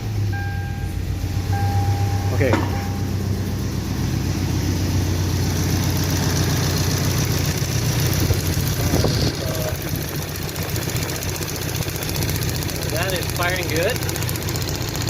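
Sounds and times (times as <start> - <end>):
car engine idling with misfire: 0.0 - 15.0.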